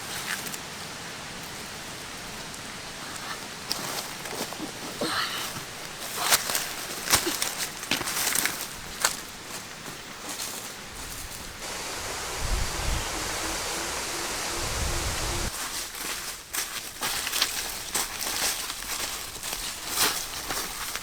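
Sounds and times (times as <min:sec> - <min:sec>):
steady rushing hiss: 0:09.7 - 0:15.6.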